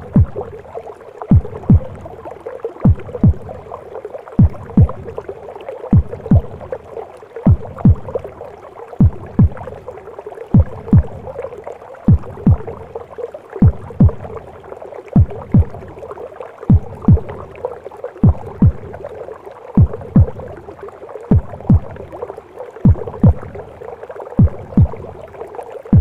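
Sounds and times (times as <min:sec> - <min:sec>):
heartbeat thumps: 0:00.0 - 0:00.6, 0:01.3 - 0:02.2, 0:02.8 - 0:03.8, 0:04.4 - 0:05.3, 0:05.9 - 0:06.8, 0:07.4 - 0:08.4, 0:09.0 - 0:09.9, 0:10.5 - 0:11.5, 0:12.1 - 0:13.0, 0:13.6 - 0:14.5, 0:15.2 - 0:16.0, 0:16.7 - 0:17.6, 0:18.2 - 0:19.1, 0:19.8 - 0:20.6, 0:21.3 - 0:22.2, 0:22.8 - 0:23.8, 0:24.4 - 0:25.3.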